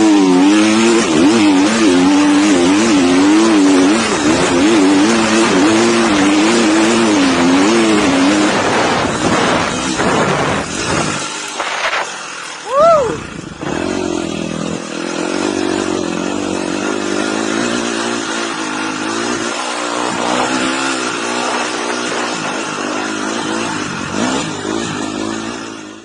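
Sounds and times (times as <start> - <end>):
dirt bike engine revving: 0.0 - 26.0
steady rushing noise: 0.1 - 25.9.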